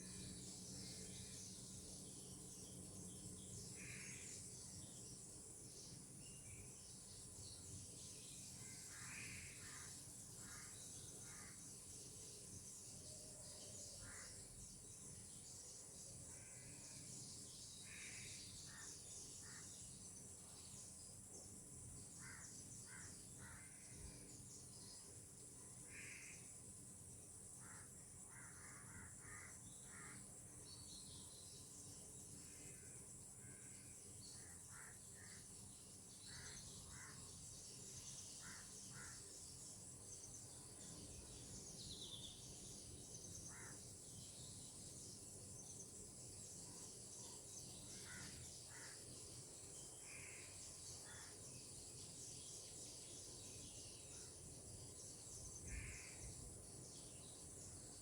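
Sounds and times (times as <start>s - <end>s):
faint bird calls: 27.6s - 30.2s, 43.5s - 43.8s, 55.6s - 56.4s.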